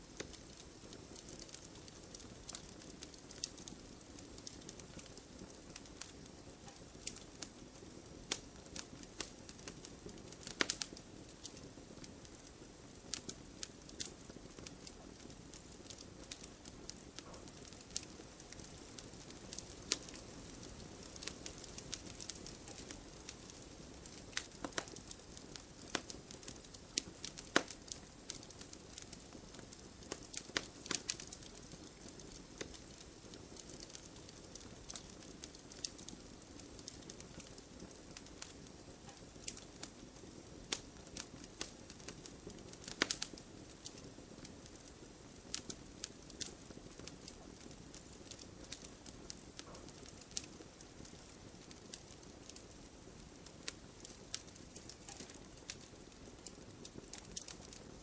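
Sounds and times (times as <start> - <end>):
burning wood crackling and popping: 0.0 - 58.0
fire hissing: 0.1 - 57.9.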